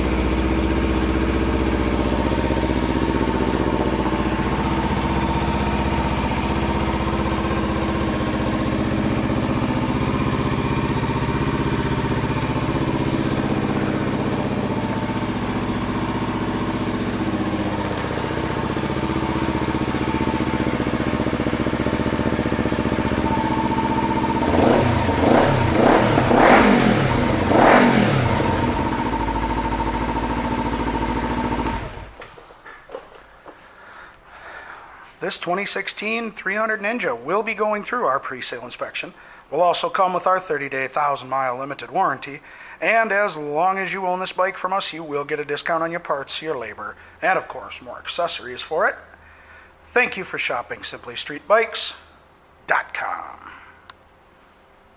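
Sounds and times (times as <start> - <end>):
motorcycle engine idling and revving: 0.0 - 32.2.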